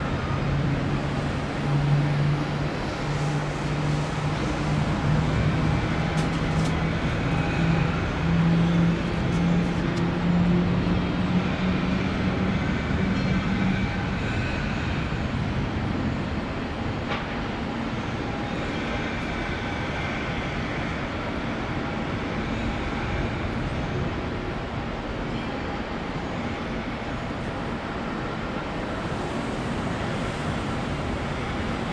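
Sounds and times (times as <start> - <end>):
jet engines rumbling: 0.0 - 12.5.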